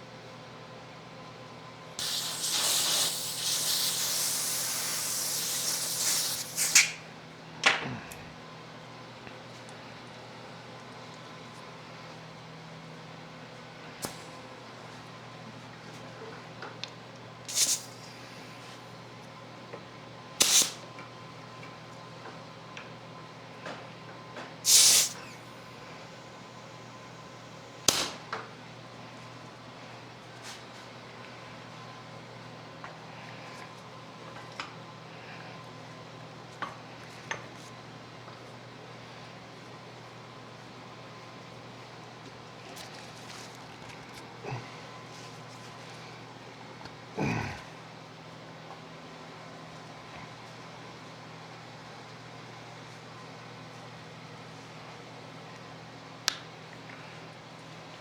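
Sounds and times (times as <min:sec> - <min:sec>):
pressurized gas spraying hiss: 0:02.0 - 0:07.0, 0:17.5 - 0:17.9, 0:20.4 - 0:20.8, 0:24.7 - 0:25.4
short sharp gas blasts: 0:02.0 - 0:07.0, 0:17.5 - 0:17.9, 0:20.4 - 0:20.8, 0:24.6 - 0:25.4, 0:27.9 - 0:28.2.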